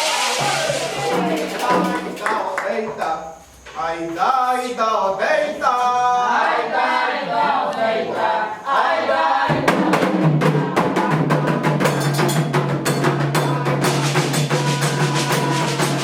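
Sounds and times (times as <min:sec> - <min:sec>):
hand drums fast rhythm: 0:00.3 - 0:02.4, 0:09.5 - 0:16.0
person chanting: 0:13.6 - 0:16.0.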